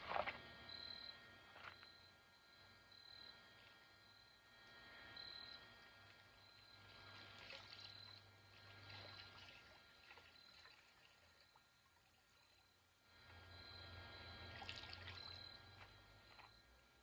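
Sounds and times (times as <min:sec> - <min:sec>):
steady low hum: 0:00.0 - 0:17.0
water trickling: 0:06.8 - 0:12.8, 0:14.3 - 0:16.6.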